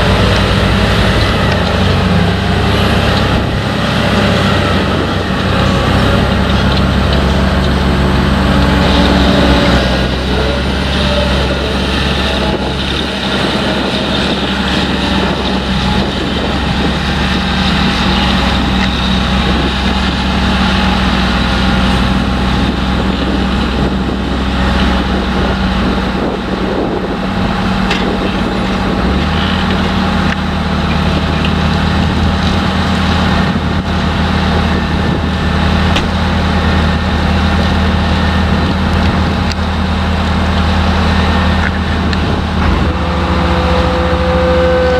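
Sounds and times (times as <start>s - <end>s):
harvester engine droning: 0.0s - 44.9s
tractor engine droning: 0.0s - 44.9s.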